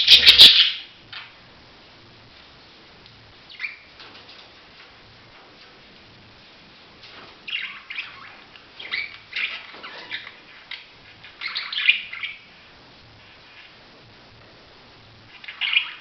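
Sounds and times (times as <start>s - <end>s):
budgerigar chirping: 0.0s - 1.2s, 7.5s - 12.5s, 15.4s - 16.0s.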